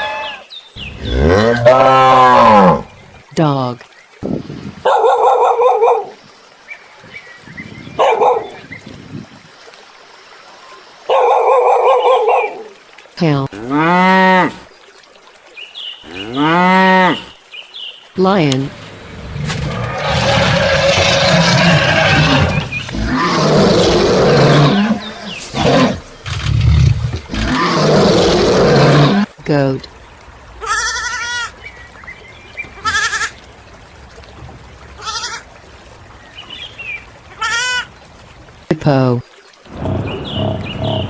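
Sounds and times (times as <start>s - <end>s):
lion roaring: 0.8s - 2.9s, 18.6s - 29.3s
dog barking: 4.8s - 6.2s, 8.0s - 8.6s, 11.1s - 12.7s.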